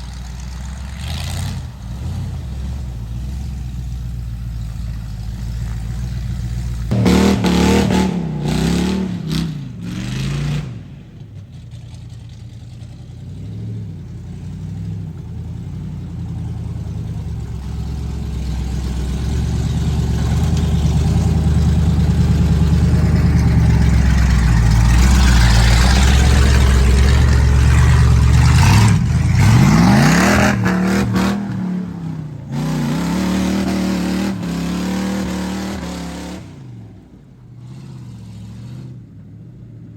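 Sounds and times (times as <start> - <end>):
truck engine revving hard: 0.0 - 3.6, 6.8 - 11.4, 16.6 - 39.1.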